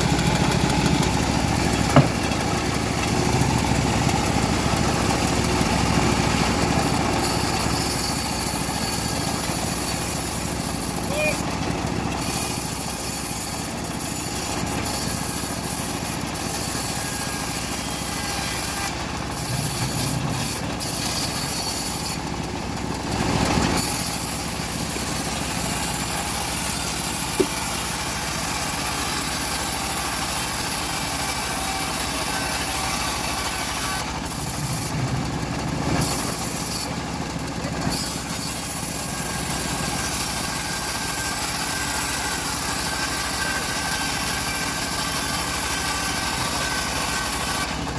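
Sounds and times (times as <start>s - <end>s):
bandsaw blade cutting log: 0.0s - 47.9s
machine drive running: 14.1s - 29.1s.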